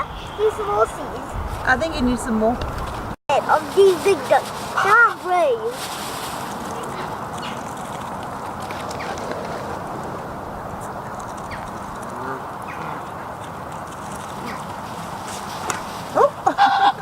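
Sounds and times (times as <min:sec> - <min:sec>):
ducks quacking: 0:15.6 - 0:17.0.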